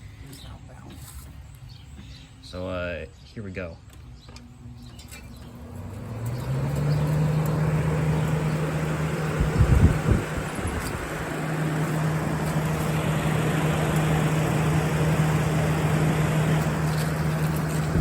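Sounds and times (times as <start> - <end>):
air conditioner fan running: 3.8 - 18.0.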